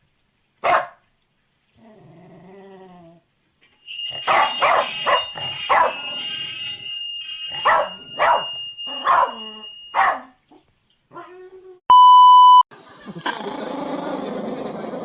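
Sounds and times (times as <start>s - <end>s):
dog barking: 0.6s - 1.0s, 4.3s - 6.0s, 7.6s - 9.4s, 10.0s - 10.4s
loud electronic beep: 11.9s - 12.7s.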